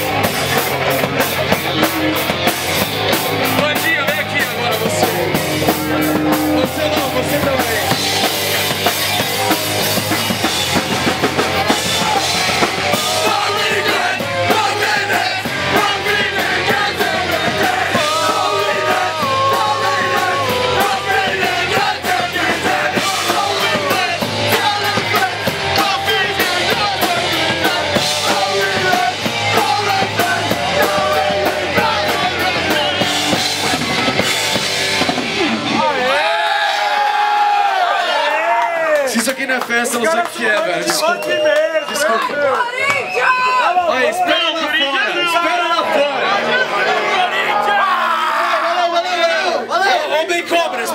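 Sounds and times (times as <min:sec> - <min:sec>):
distorted guitars: 0:00.0 - 0:37.2
punk rock band playing: 0:00.0 - 0:37.6
drum kit: 0:00.0 - 0:37.8
shouted vocals: 0:09.1 - 0:34.3, 0:35.4 - 0:39.3, 0:40.6 - 0:50.9.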